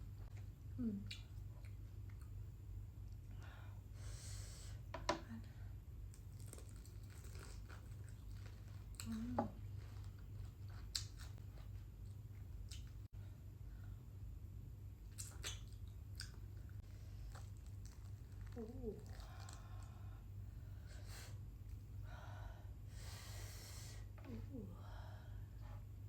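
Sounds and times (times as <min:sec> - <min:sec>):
wet mouth noises: 0:00.4 - 0:02.2, 0:15.1 - 0:16.5
chewing fried chicken: 0:06.1 - 0:13.0, 0:15.1 - 0:20.0
sharp crunches and tearing: 0:06.3 - 0:09.2.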